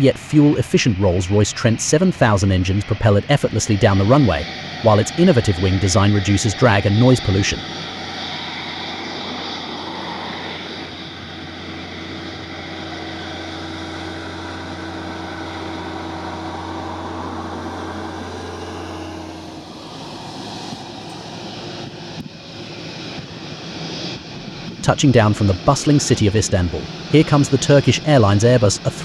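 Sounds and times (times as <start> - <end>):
constant low hum: 0.0 - 29.0
jet engines at takeoff: 0.0 - 29.0.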